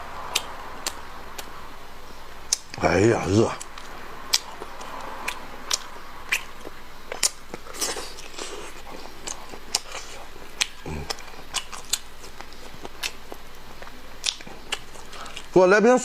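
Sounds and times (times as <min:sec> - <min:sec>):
lip smacks and chewing: 0:00.1 - 0:01.6, 0:02.5 - 0:02.8, 0:03.5 - 0:15.6
person grunting: 0:10.8 - 0:11.3.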